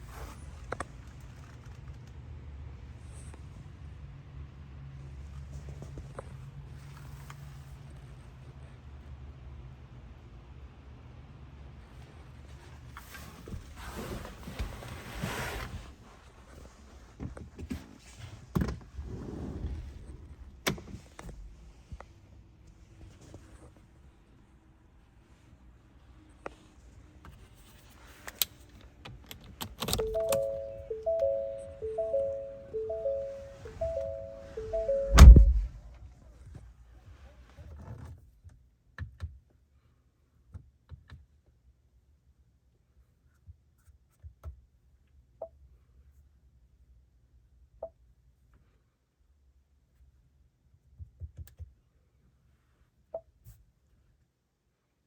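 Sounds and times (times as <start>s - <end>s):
knocks and clicks: 29.9s - 35.8s
electronic chime tones: 30.0s - 35.8s
car door shutting: 33.6s - 35.8s.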